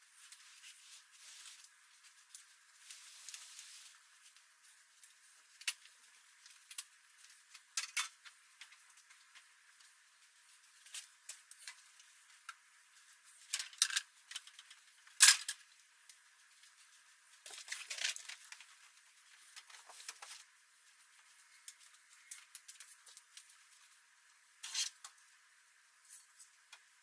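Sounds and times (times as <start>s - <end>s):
household items clicking and rustling: 17.4s - 20.5s.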